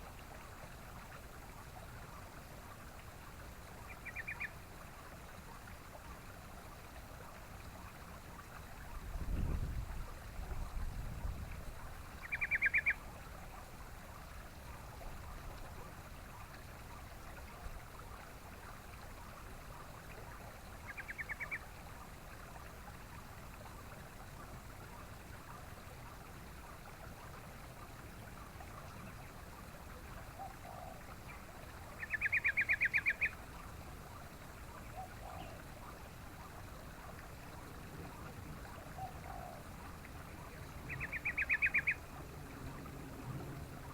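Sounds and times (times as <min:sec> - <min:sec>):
faint lower bird calls: 0:03.8 - 0:04.6, 0:12.2 - 0:13.0, 0:20.8 - 0:21.7, 0:30.3 - 0:33.4, 0:38.1 - 0:42.2
bird chattering: 0:40.9 - 0:42.0.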